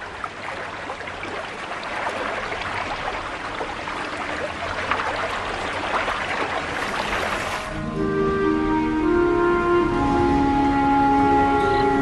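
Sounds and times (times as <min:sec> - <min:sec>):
small water splashes: 0:00.0 - 0:07.8
river water rushing: 0:00.0 - 0:07.9.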